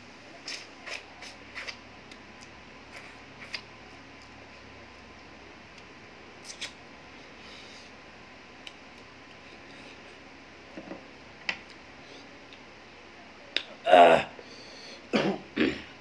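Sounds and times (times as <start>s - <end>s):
person chewing and lip smacking: 0.4s - 4.4s, 5.7s - 6.8s.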